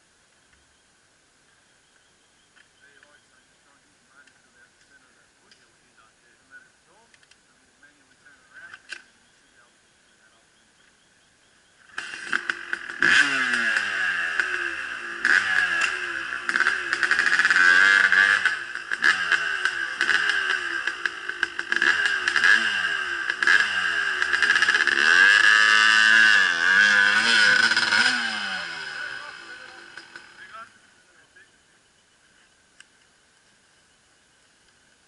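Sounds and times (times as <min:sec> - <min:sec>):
dirt bike engine revving: 0:11.8 - 0:31.5.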